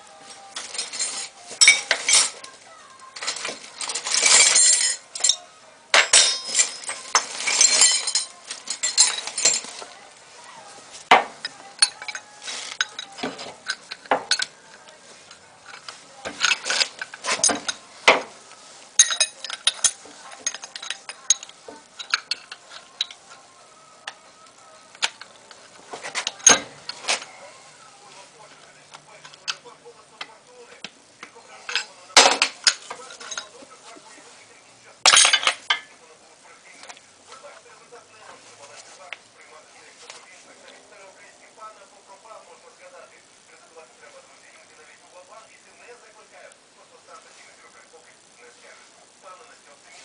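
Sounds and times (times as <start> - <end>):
metal tools clinking and scraping: 0.2 - 30.4, 31.2 - 34.2, 35.0 - 36.0.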